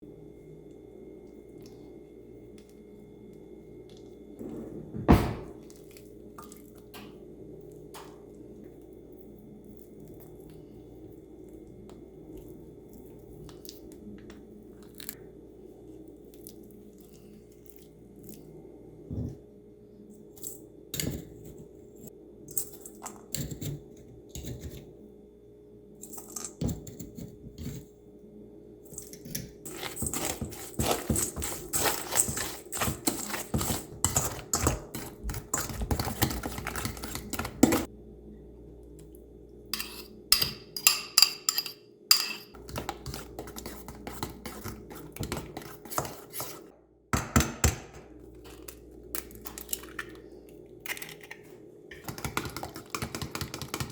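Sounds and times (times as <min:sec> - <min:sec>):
faint steady hum: 0:00.0 - 0:47.2
utensils clinking against bowl: 0:28.9 - 0:37.9, 0:39.8 - 0:46.7.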